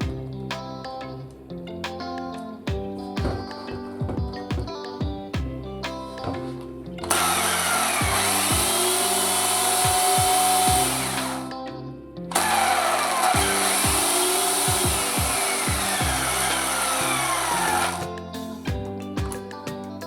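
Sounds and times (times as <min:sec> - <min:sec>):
background music with steady beat: 0:00.0 - 0:20.0
electric chainsaw running: 0:07.0 - 0:11.5, 0:12.3 - 0:18.1.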